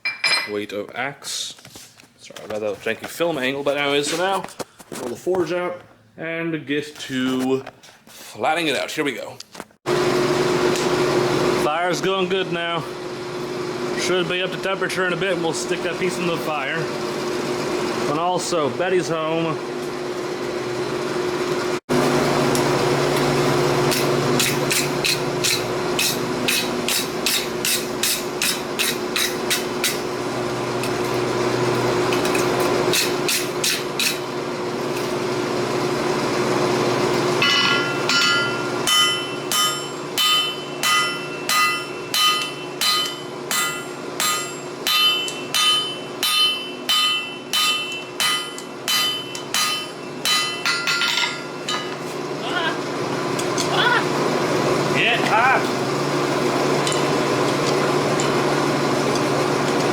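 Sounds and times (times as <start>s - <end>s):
hammer striking metal on anvil: 23.9s - 30.0s, 32.9s - 34.2s, 37.4s - 52.0s.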